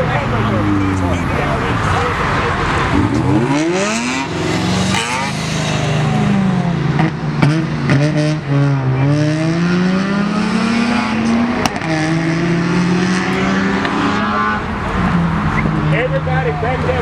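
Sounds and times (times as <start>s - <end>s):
car engine revving hard: 0.0s - 17.0s.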